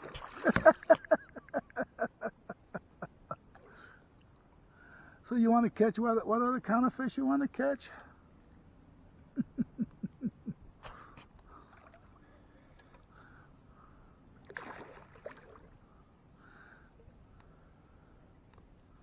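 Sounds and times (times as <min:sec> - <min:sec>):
water splashing against a kayak: 0:00.0 - 0:01.4, 0:14.4 - 0:15.8.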